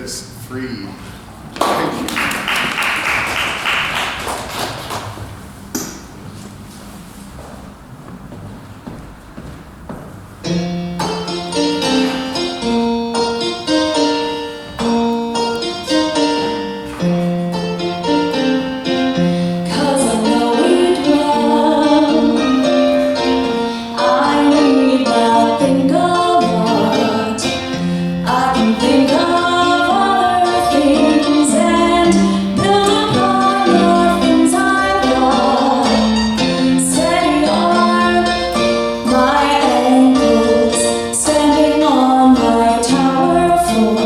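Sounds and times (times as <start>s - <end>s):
piano accompaniment: 7.7s - 44.0s
person singing: 19.7s - 44.0s.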